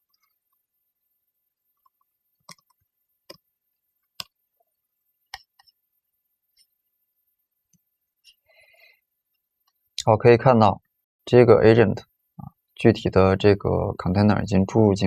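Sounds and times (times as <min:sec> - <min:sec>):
computer mouse clicks: 0:01.8 - 0:03.4.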